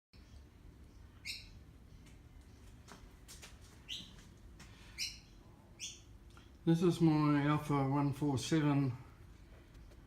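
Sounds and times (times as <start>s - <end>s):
bird chirping: 0.2s - 2.9s, 3.8s - 6.4s.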